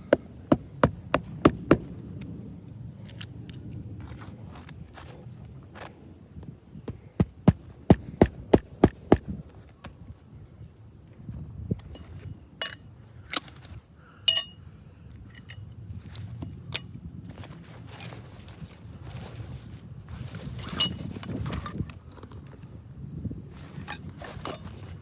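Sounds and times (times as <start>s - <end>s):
hammer striking a nail: 6.9s - 9.3s
metallic clinks: 14.3s - 14.6s.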